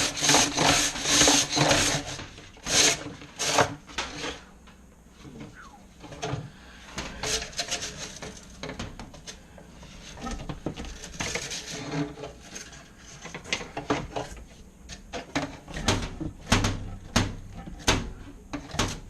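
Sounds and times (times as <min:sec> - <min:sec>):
rubbing and scraping in vent tube: 0:00.0 - 0:04.6, 0:05.2 - 0:19.0.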